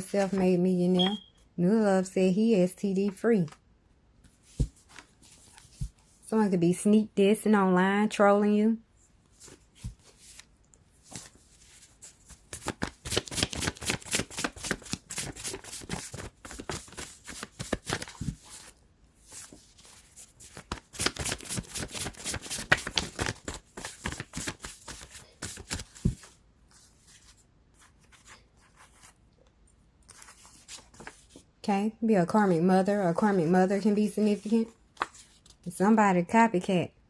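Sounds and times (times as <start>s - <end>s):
cards being shuffled: 9.4s - 18.7s, 19.4s - 29.2s, 30.1s - 31.4s.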